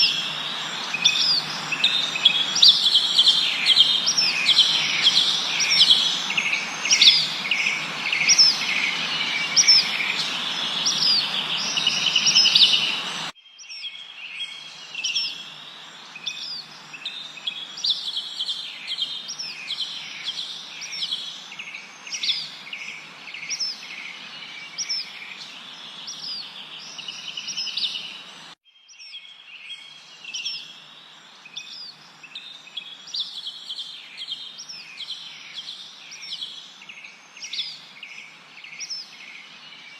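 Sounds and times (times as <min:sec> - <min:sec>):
steady background hiss: 0:00.0 - 0:13.3, 0:14.1 - 0:28.6
forest birds chirping: 0:00.0 - 0:39.9.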